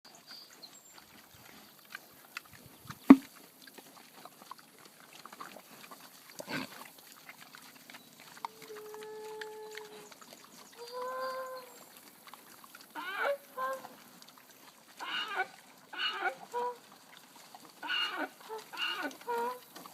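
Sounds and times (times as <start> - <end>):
pig grunting: 3.8 - 14.0, 15.0 - 17.0, 17.6 - 19.9
drawn-out animal calls: 6.3 - 14.1, 15.0 - 19.9.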